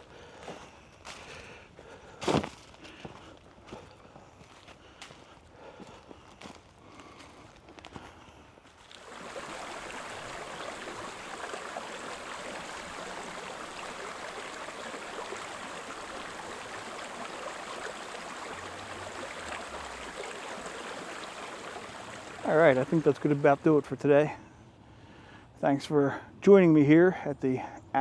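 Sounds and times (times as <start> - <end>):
flowing creek: 0.0 - 26.9
footsteps on dry leaves: 0.4 - 1.4, 2.2 - 5.4, 6.2 - 9.1.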